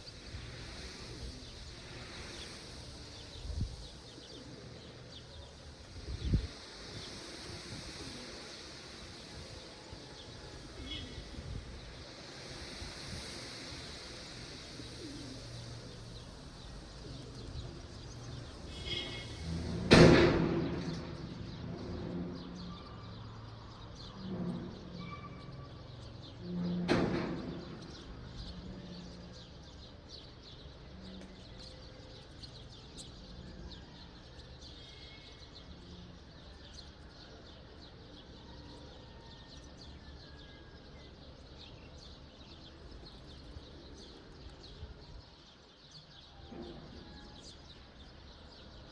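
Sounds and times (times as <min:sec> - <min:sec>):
birds chirping: 0:14.7 - 0:19.8, 0:20.5 - 0:48.9.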